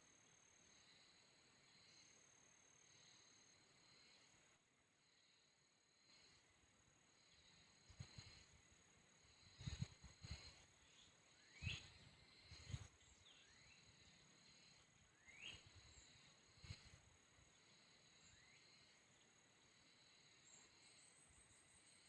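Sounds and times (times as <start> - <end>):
rapid pulsing insect chirp: 0.0 - 22.0
high-pitched insect drone: 5.0 - 22.0.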